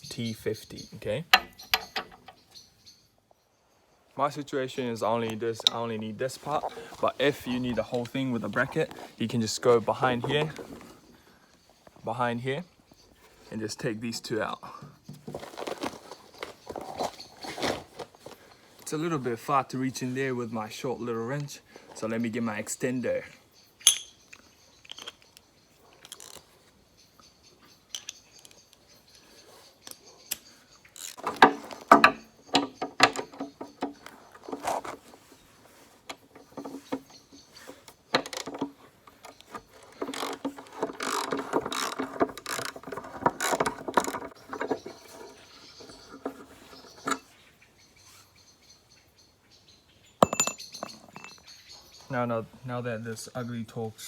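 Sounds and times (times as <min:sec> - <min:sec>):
sharp metal clinks: 0:23.8 - 0:24.3, 0:50.2 - 0:51.4.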